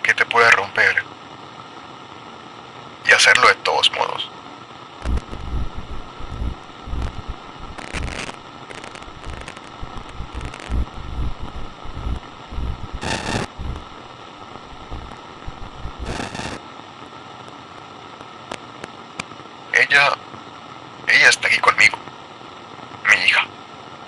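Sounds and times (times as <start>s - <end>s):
fluttering low rumble: 5.0s - 16.6s
radio static hiss: 5.0s - 16.6s
crackling noise bursts: 5.0s - 19.3s.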